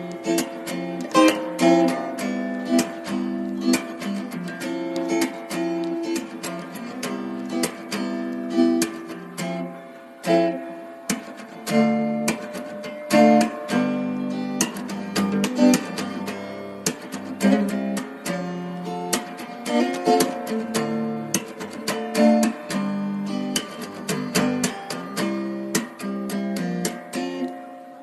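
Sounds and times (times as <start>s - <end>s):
acoustic guitar strummed and plucked: 0.0s - 28.0s.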